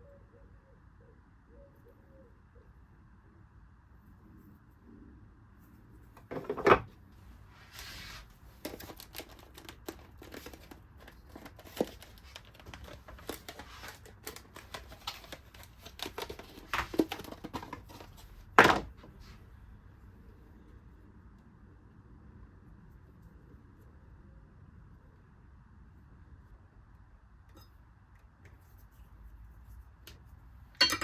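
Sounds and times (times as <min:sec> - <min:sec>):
objects handled on workbench: 0:06.1 - 0:19.4, 0:27.5 - 0:31.0.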